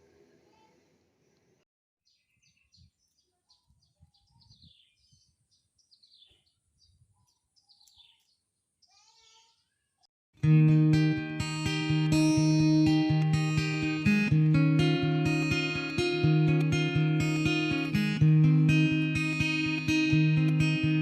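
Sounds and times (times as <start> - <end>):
faint birds chirping: 0.1 - 10.1.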